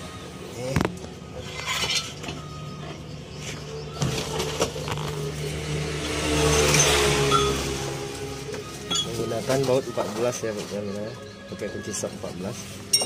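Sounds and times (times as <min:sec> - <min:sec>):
vehicle engine running: 0:00.0 - 0:10.6
metal tools clinking: 0:01.4 - 0:02.5, 0:06.4 - 0:07.7, 0:08.8 - 0:10.4.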